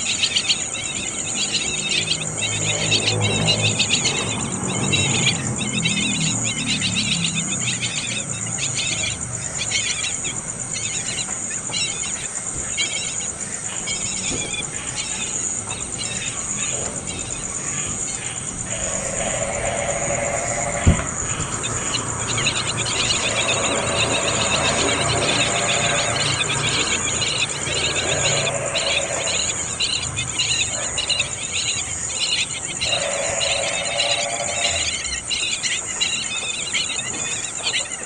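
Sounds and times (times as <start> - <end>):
insects trilling: 0.0 - 38.0
rapid high chirping: 13.9 - 37.0.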